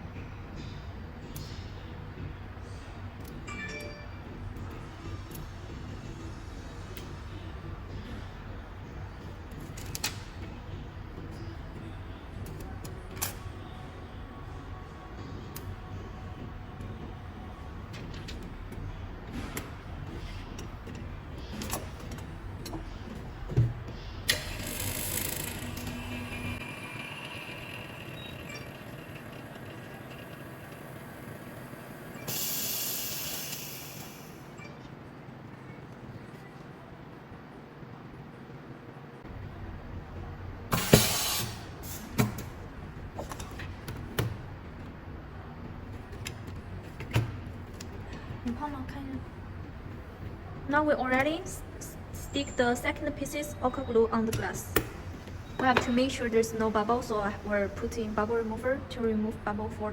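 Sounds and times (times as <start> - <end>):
low machine hum: 0.0 - 59.9
hiss: 32.3 - 34.2, 40.7 - 42.0.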